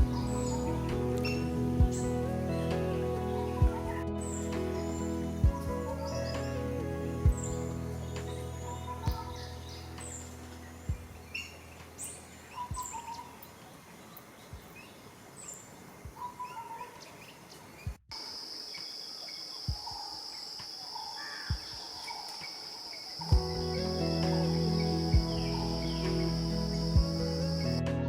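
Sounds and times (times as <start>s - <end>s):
forest birds chirping: 0.0s - 28.0s
high insect drone: 22.4s - 27.8s.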